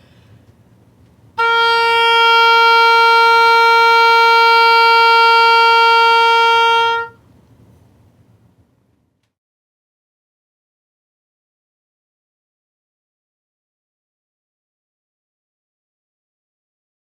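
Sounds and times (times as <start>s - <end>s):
oboe long note: 1.4s - 7.2s.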